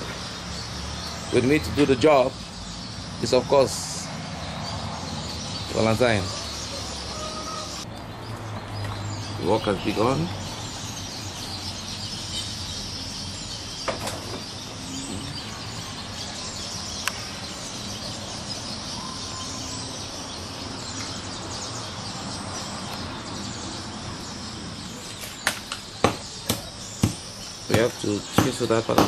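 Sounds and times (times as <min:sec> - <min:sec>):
birds chirping: 0:00.0 - 0:29.0
insects chirping: 0:00.0 - 0:29.0
knocking on wood: 0:25.4 - 0:29.0.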